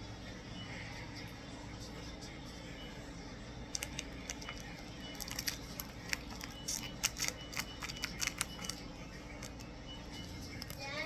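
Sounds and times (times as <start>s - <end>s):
foil wrapper crinkling and tearing: 3.8s - 9.7s, 10.5s - 10.8s.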